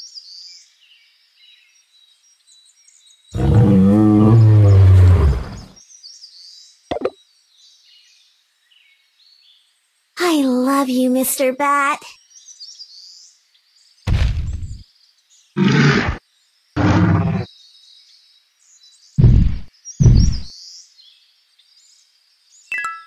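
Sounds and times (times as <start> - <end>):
birds chirping: 1.5 - 8.3, 10.3 - 23.0
dinosaur roars and growls: 3.4 - 5.7, 15.6 - 16.2, 16.8 - 17.5.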